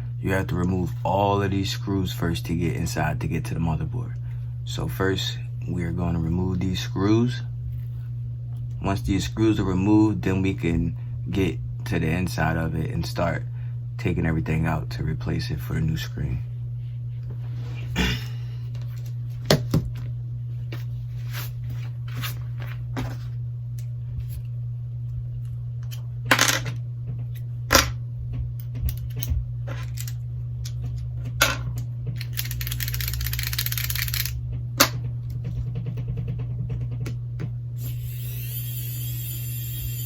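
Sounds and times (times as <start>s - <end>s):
steady low hum: 0.0s - 40.0s
screwdriver and screws clicking: 32.2s - 34.4s.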